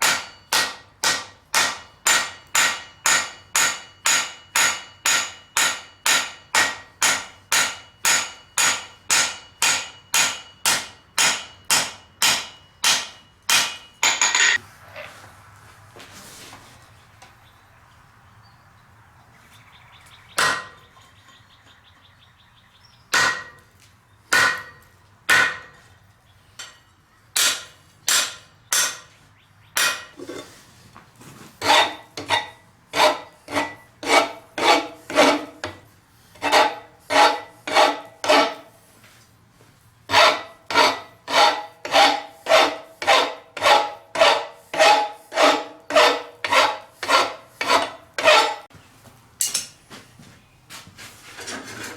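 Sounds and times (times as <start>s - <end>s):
hammer ringing on anvil: 0.0s - 14.6s.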